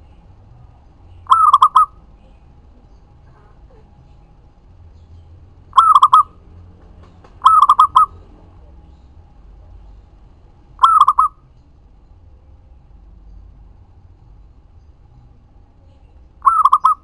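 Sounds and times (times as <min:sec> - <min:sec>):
dove cooing: 0:01.2 - 0:09.0, 0:10.8 - 0:11.4, 0:16.4 - 0:17.0.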